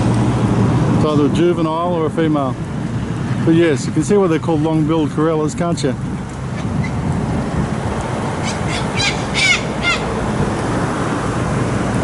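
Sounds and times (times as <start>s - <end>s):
road traffic noise: 0.0s - 12.0s
corellas screeching: 8.4s - 10.1s.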